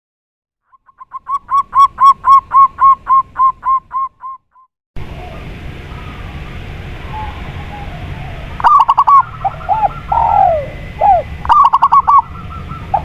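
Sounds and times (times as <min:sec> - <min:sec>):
hissing outdoor background: 0:05.0 - 0:13.0
faint bird calls: 0:05.1 - 0:13.0
bird calling rapid single notes: 0:07.1 - 0:13.0.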